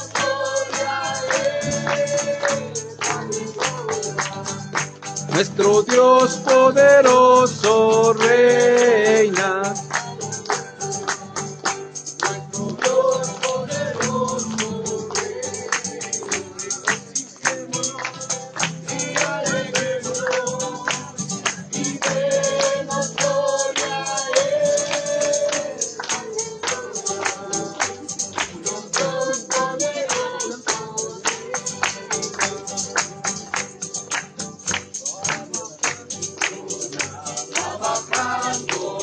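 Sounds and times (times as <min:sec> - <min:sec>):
tambourine beat: 0:00.0 - 0:39.0
voices singing a wavering melody: 0:18.9 - 0:33.3, 0:36.2 - 0:39.0.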